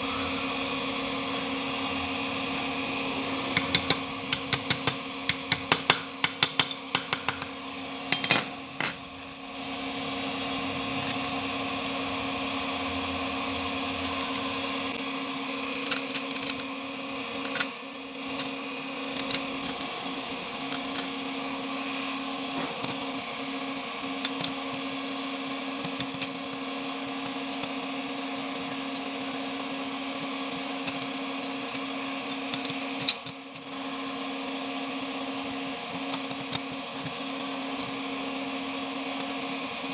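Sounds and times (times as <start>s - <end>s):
machine hum: 7.6s - 20.6s.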